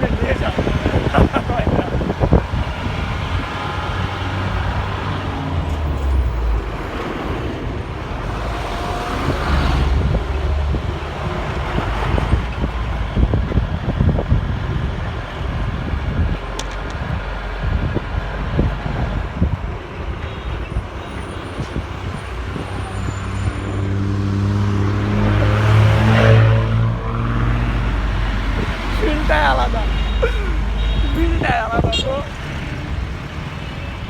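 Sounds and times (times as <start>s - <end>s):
truck engine and road rumble: 0.0s - 34.0s
knocks and rattles: 16.5s - 17.3s.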